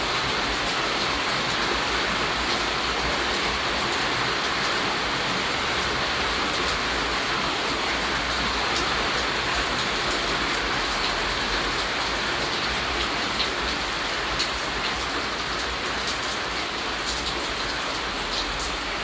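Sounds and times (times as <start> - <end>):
steady rainfall: 0.0 - 19.0.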